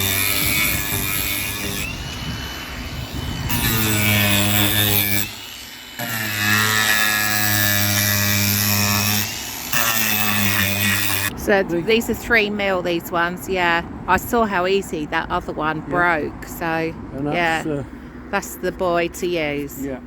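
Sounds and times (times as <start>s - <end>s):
electric drill boring into wood: 0.0s - 11.3s.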